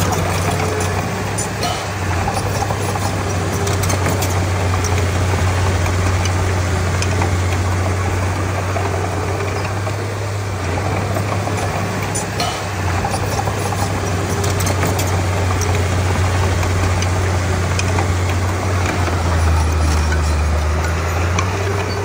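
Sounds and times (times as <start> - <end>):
short metal clanks: 0.0 - 5.0, 11.1 - 15.9
bulldozer diesel engine drone: 0.0 - 22.0.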